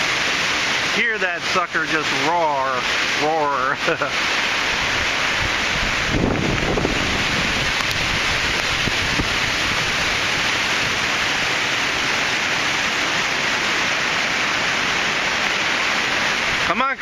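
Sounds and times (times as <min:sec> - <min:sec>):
strong wind roaring: 0:04.6 - 0:16.7.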